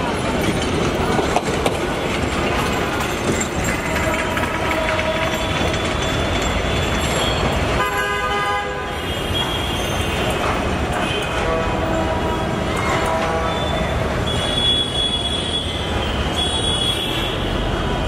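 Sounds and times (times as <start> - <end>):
train wheels rumbling on rails: 0.0 - 18.0
train horn: 3.8 - 5.6, 7.8 - 10.2, 11.0 - 15.7.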